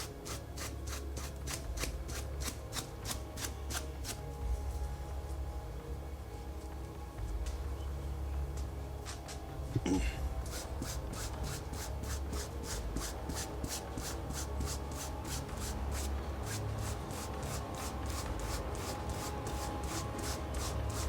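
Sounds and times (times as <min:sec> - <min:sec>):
wire brush rasping on cloth: 0:00.0 - 0:04.2, 0:10.4 - 0:21.0.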